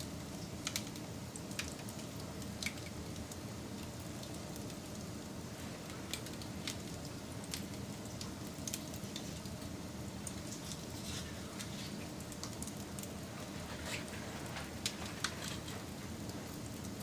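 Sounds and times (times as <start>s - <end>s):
fire crackles and pops: 0.0s - 17.0s
fire rushing: 10.3s - 16.7s.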